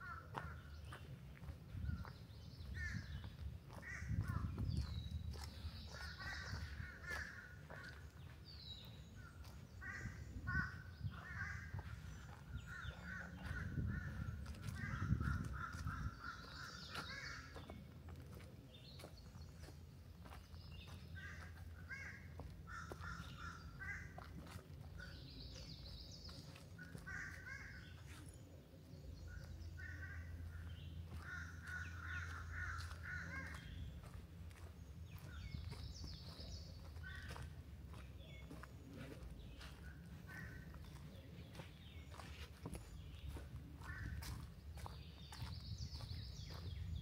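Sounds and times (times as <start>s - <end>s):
birds calling: 0.0s - 47.0s
footsteps on forest floor: 0.0s - 47.0s.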